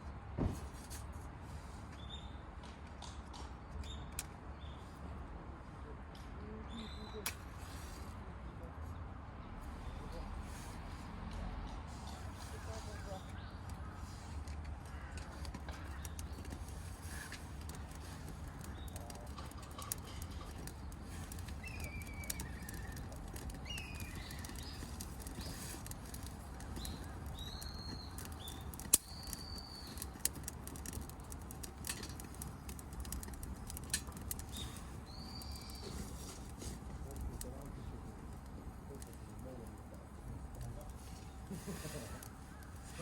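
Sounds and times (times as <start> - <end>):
sharp clicks: 14.5 - 35.9
birds whistling: 20.8 - 26.2, 26.8 - 30.2, 34.5 - 36.2.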